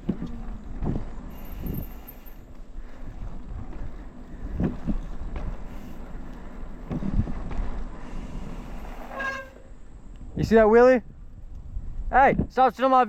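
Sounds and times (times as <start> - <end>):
bike tyre rumble on pavement: 0.0 - 12.1
wind buffeting microphone: 0.0 - 12.7.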